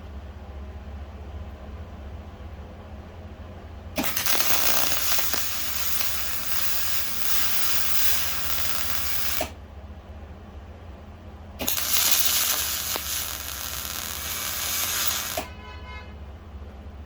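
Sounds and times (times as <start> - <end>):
low steady hum: 0.0 - 17.0
handheld power tool running: 4.0 - 9.5, 11.6 - 15.5.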